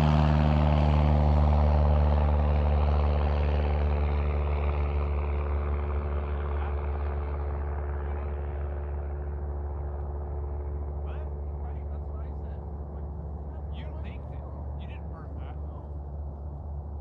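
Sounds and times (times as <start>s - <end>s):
propeller engine running: 0.0s - 17.0s.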